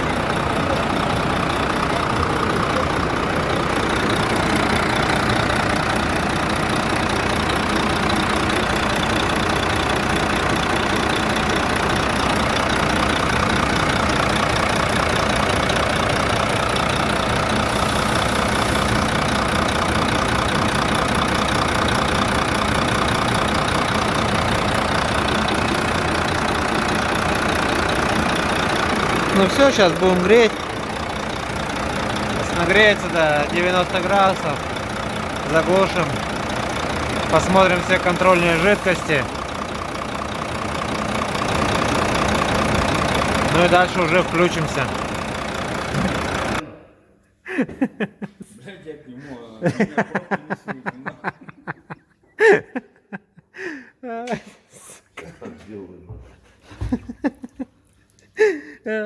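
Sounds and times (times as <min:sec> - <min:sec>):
diesel engine idling: 0:00.0 - 0:46.8.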